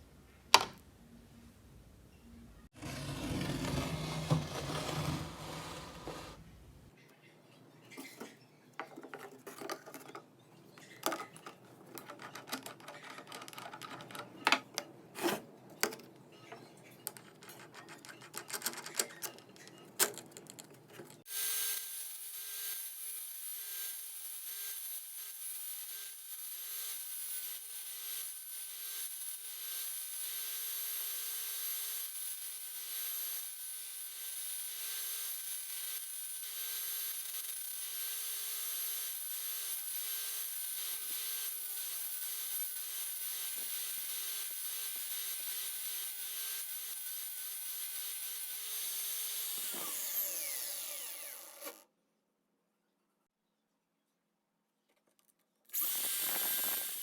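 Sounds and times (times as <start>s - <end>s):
metal tools clicking and knocking: 8.8s - 14.9s, 15.8s - 21.3s.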